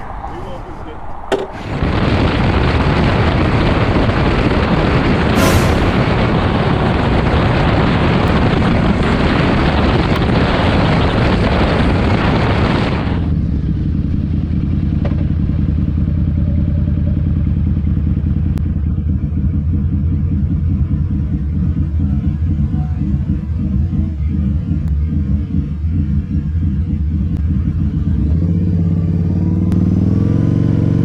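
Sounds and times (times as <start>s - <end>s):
wind rush: 0.0s - 14.6s
motorcycle engine rumble: 0.0s - 31.0s.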